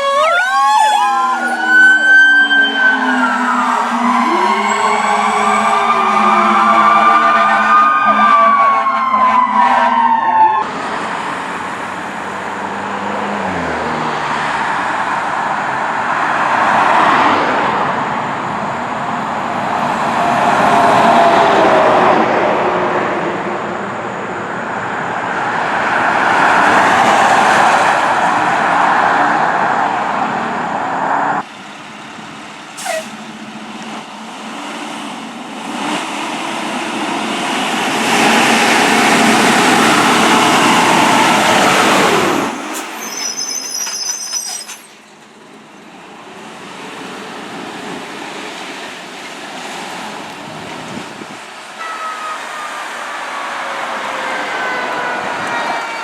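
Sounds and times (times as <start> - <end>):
fire truck siren: 0.0 - 11.4, 19.6 - 22.8, 35.9 - 43.1, 51.8 - 56.0
road noise: 0.0 - 56.0
heavy truck engine: 10.6 - 16.9, 17.5 - 56.0.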